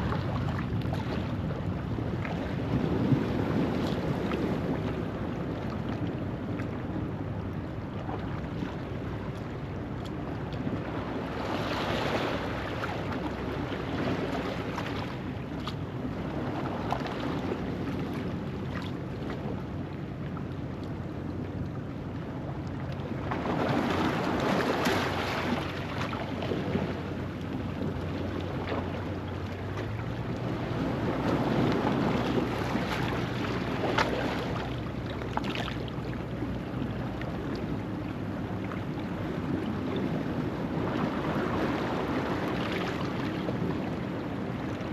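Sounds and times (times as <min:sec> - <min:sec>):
ocean waves on rocky shore: 0:10.3 - 0:19.5, 0:23.0 - 0:44.9
small water splashes: 0:22.9 - 0:37.4.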